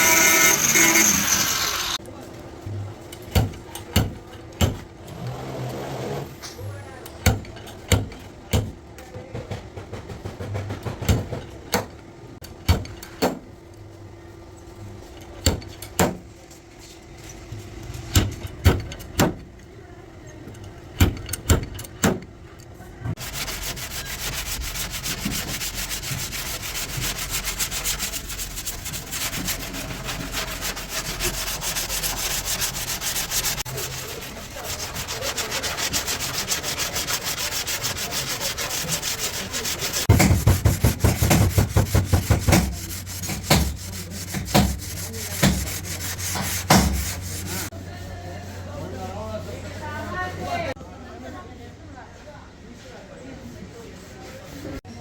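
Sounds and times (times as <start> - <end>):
power tool sanding metal: 0.0 - 2.0, 23.2 - 47.7
knocks on car-body metal: 40.1 - 42.7.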